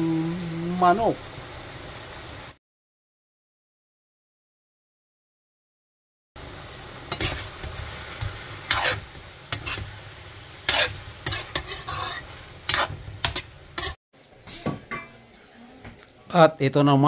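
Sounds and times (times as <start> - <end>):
chicken sizzling in a wok: 0.0 - 2.6, 6.4 - 15.7
spatula scraping a pan: 7.1 - 15.5.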